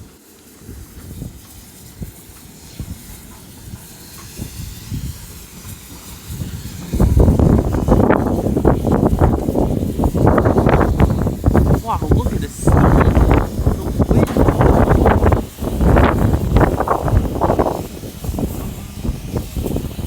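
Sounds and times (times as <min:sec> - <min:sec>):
low hiss of steam: 0:00.0 - 0:20.0
loud uneven rumbling: 0:10.1 - 0:20.0.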